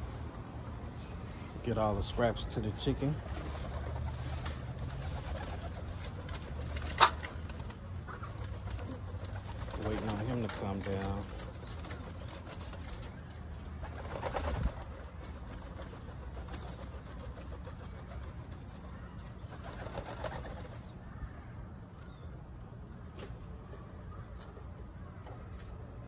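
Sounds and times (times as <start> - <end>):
pigeon wings flapping: 2.8 - 20.9.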